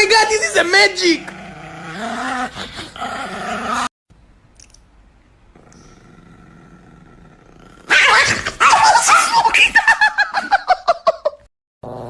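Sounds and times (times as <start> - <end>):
small dog growling: 1.2 - 3.9, 5.5 - 8.6.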